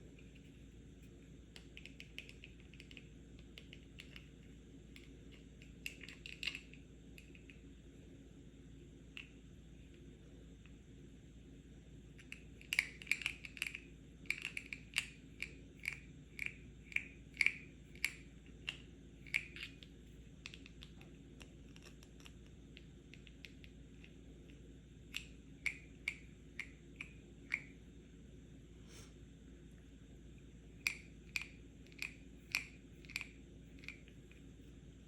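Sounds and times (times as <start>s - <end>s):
tapping on a pill box: 1.5s - 4.3s, 4.9s - 7.6s, 12.2s - 24.2s, 30.8s - 34.4s.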